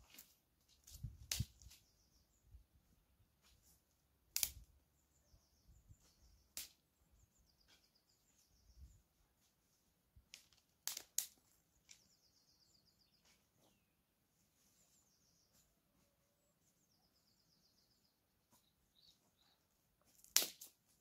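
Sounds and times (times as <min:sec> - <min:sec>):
faint bird chirps and trills: 0:01.4 - 0:03.0, 0:04.8 - 0:09.5, 0:11.6 - 0:19.9.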